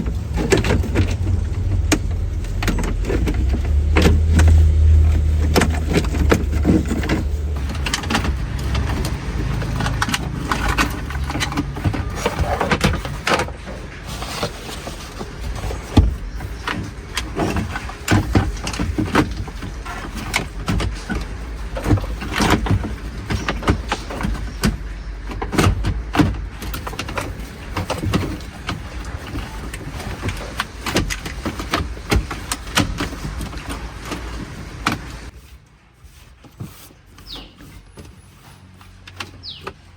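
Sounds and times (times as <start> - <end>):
car low rumble: 0.0 - 39.9
knocks and rattles: 0.0 - 39.9.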